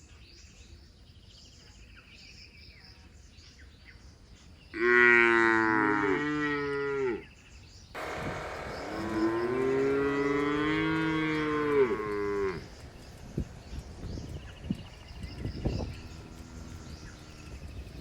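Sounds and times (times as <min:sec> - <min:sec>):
cow mooing: 0:04.8 - 0:07.2, 0:08.0 - 0:14.0.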